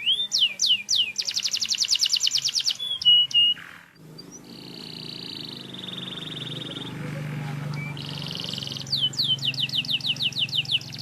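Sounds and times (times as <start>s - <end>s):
canary singing: 0.0s - 11.0s.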